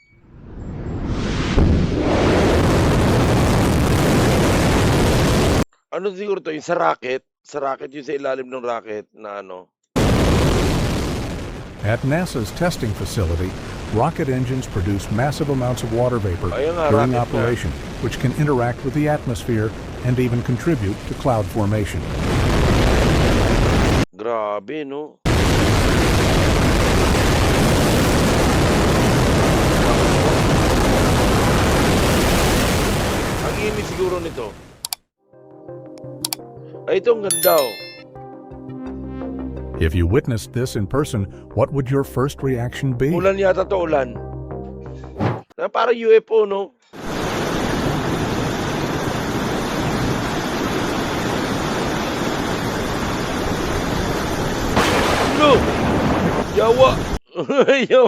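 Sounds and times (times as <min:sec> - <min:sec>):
rocket engine roaring: 0:00.4 - 0:05.6.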